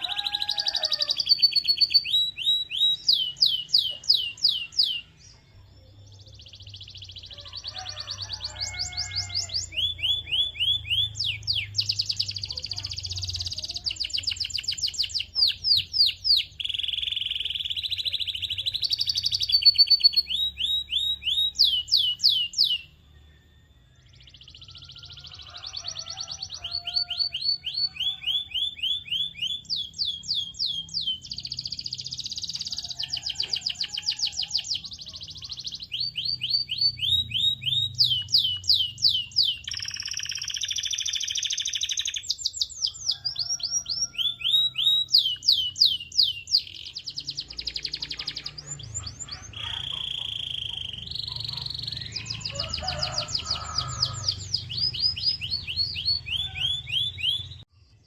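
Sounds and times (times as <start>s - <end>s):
canary singing: 0.0s - 57.7s.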